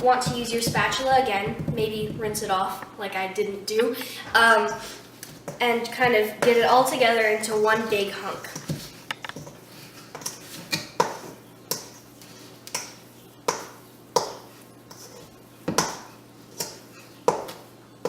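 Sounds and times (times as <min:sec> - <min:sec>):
spatula knocking against mixing bowl: 0:13.5 - 0:14.4.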